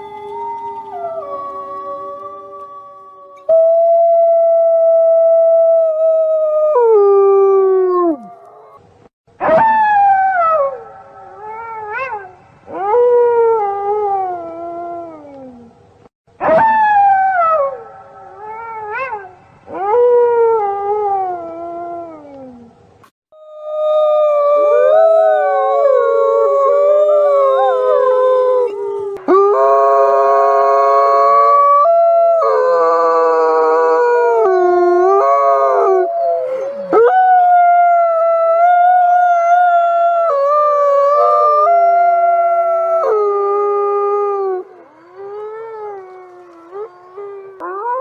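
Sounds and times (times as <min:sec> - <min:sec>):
wolves howling: 0:23.4 - 0:48.0.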